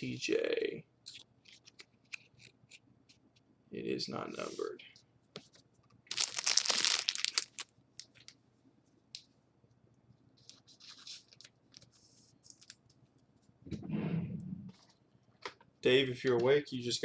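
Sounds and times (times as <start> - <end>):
foil wrapper ripping: 6.1 - 7.7
wrapper crinkling: 6.1 - 8.4.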